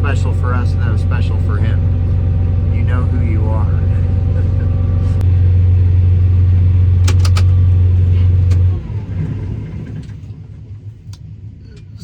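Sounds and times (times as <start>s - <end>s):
combine harvester drone: 0.0s - 12.0s
sharp clicks: 7.0s - 7.6s.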